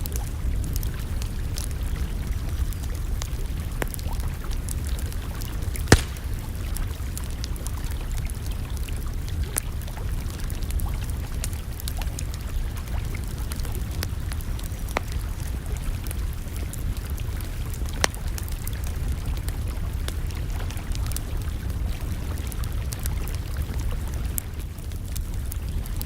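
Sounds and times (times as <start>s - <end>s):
low fire rumble: 0.0s - 26.0s
campfire crackling and popping: 2.6s - 9.6s, 22.6s - 26.0s.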